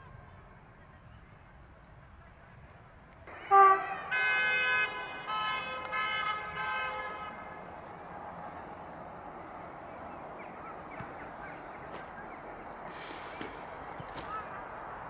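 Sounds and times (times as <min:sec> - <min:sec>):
multi-tone horn notes: 0:03.3 - 0:07.7
train horn blast: 0:03.3 - 0:07.7.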